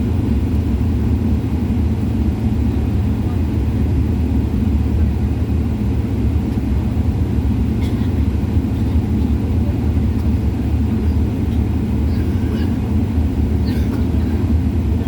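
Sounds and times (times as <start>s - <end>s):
airliner engine rumble in cabin: 0.0s - 15.0s.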